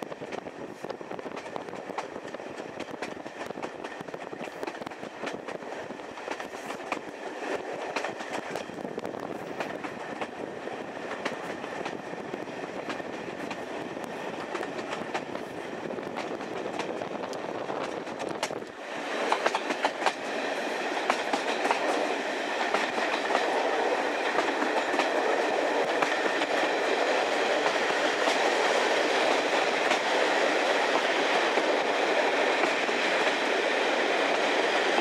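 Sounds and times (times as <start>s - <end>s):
train wheels rumbling on rails: 0.0s - 35.0s
wheels clicking over rail joints: 7.8s - 8.8s, 11.1s - 20.4s, 21.0s - 30.2s.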